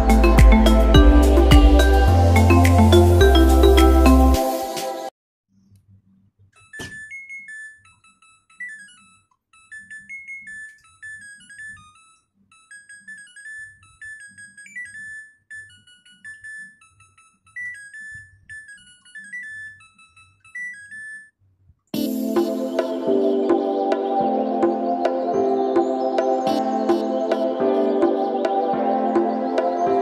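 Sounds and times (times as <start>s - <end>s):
simple high keyboard melody: 0.0s - 5.1s, 22.0s - 30.0s.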